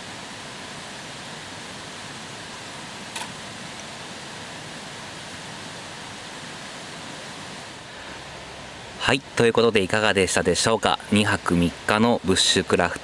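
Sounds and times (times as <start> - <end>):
rushing outdoor background noise: 0.0 - 13.0
sharp click: 3.1 - 3.4.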